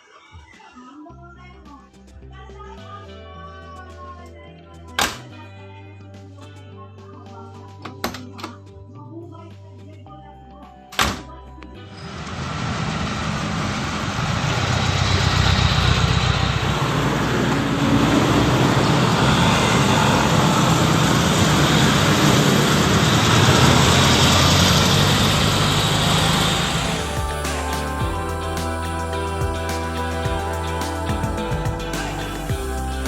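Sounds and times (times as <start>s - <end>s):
car engine running: 12.2s - 33.0s.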